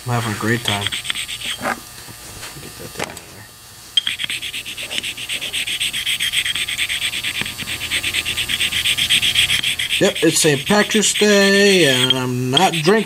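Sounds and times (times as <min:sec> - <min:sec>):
metal scraping on sharpening stone: 0:04.0 - 0:13.0.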